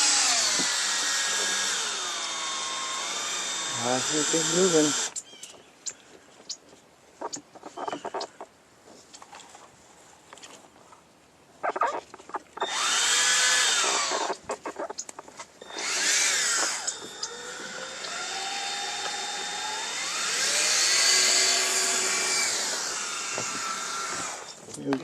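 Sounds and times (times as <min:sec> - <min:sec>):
electric drill motor whirring: 0:00.0 - 0:05.2, 0:12.6 - 0:14.4, 0:15.6 - 0:24.6.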